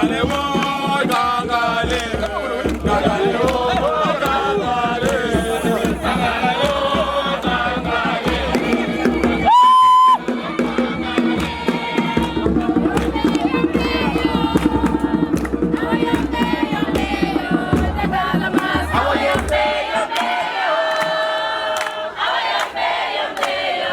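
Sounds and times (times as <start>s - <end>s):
crowd singing and chanting: 0.0s - 23.9s
percussive clapping or drumming: 0.0s - 23.9s
high whistle or horn blast: 5.3s - 7.3s.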